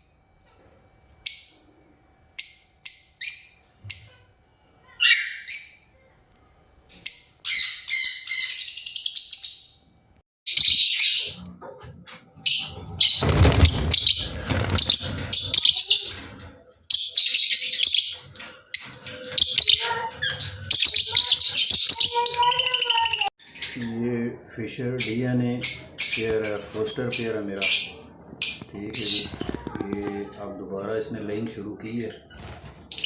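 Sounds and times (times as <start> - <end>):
lovebirds chirping: 2.4 - 6.1, 6.9 - 9.9, 10.5 - 11.5, 12.1 - 23.8
loud rustling: 12.6 - 16.6.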